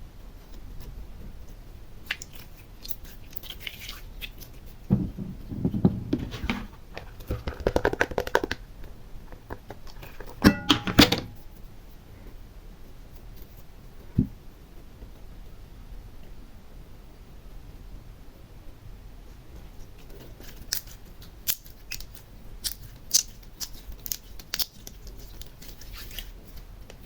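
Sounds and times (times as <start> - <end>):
slime crackling and squishing: 20.2 - 27.0.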